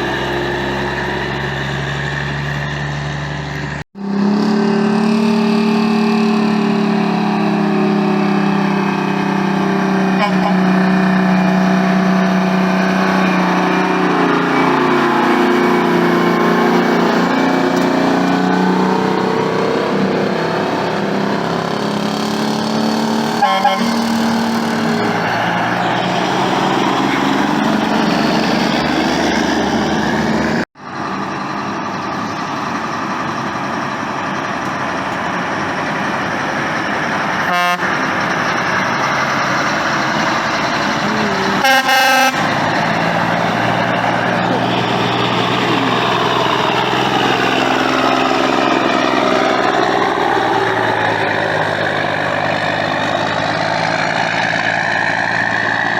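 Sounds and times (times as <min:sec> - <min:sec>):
trucks passing: 0:00.0 - 0:55.9
truck air horns: 0:10.0 - 0:17.8, 0:23.2 - 0:27.7, 0:37.4 - 0:38.2, 0:40.2 - 0:42.9.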